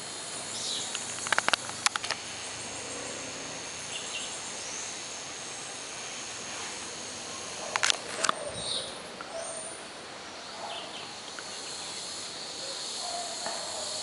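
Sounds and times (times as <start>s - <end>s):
high-pitched insect chorus: 0.0s - 14.0s
run of sharp clicks: 0.9s - 2.2s, 7.7s - 8.4s.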